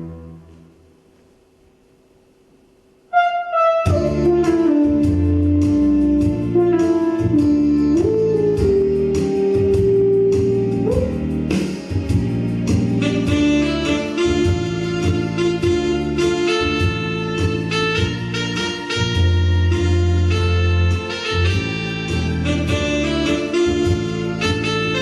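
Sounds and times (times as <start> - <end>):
live band playing: 3.7 - 25.0.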